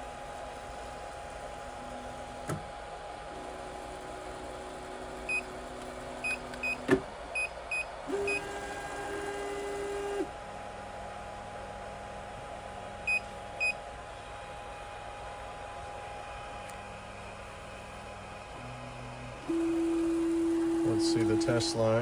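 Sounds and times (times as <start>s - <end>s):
fan hum: 0.0s - 22.0s
stepper motors whining: 19.4s - 22.0s.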